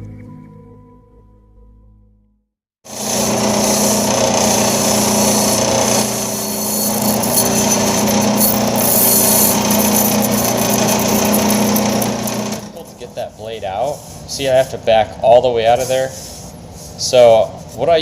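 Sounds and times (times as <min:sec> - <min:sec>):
band saw motor hum: 0:02.9 - 0:13.4
blade hissing through foam: 0:02.9 - 0:14.4.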